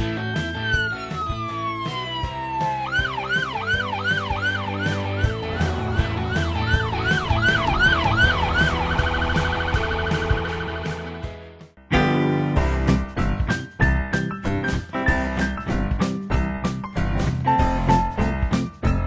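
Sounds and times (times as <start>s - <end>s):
police siren: 0.0s - 11.2s
background music with steady beat: 0.0s - 19.0s.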